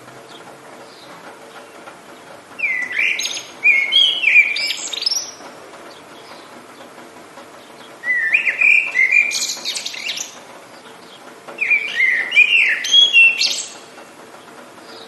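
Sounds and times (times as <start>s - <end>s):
songbird singing whistled notes: 2.6s - 5.4s, 7.6s - 13.9s.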